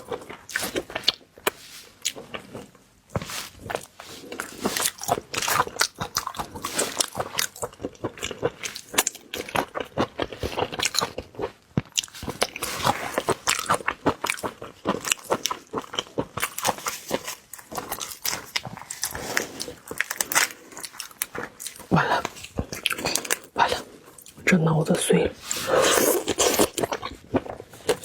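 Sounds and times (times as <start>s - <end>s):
person chewing crunchy food: 0.0s - 24.4s, 25.4s - 28.0s.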